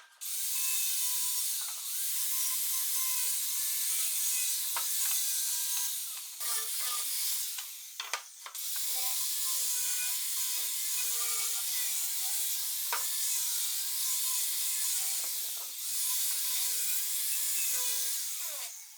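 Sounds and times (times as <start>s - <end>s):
power tool grinding wood: 0.0s - 18.9s.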